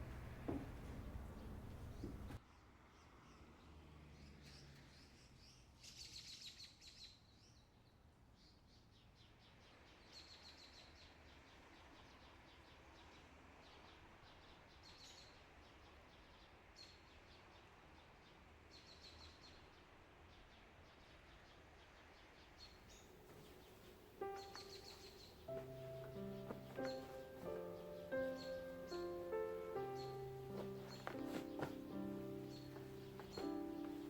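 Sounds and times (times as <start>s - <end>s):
faint bird chirps: 8.4s - 34.0s.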